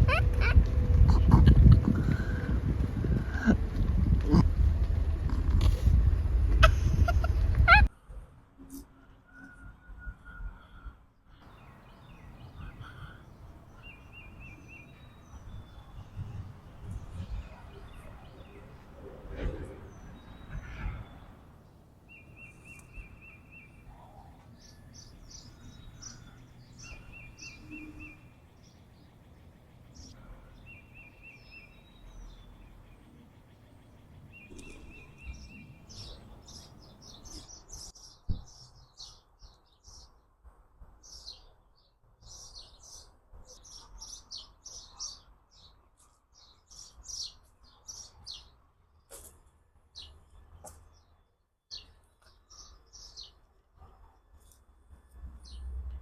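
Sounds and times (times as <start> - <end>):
birds chirping and singing: 10.2 - 40.2, 41.0 - 45.8, 46.4 - 48.6, 51.7 - 53.4
bird trill: 24.6 - 39.2.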